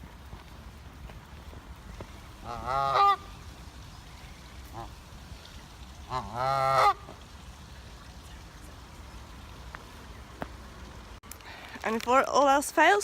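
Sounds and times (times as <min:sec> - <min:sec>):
goose honking: 0:02.4 - 0:03.4, 0:04.6 - 0:05.0, 0:06.0 - 0:07.2.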